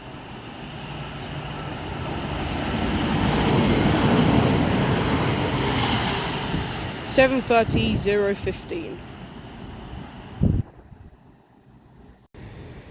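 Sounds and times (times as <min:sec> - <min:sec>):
electric train passing: 0:00.0 - 0:12.9.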